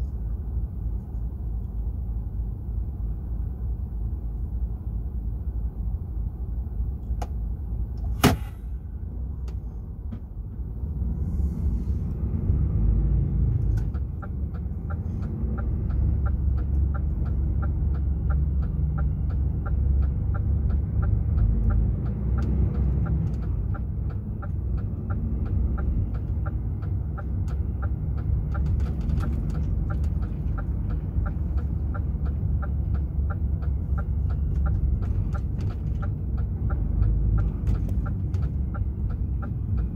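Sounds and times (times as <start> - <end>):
truck diesel engine rumble: 0.0 - 39.9
indicator relay ticking: 13.9 - 28.6, 29.8 - 39.9.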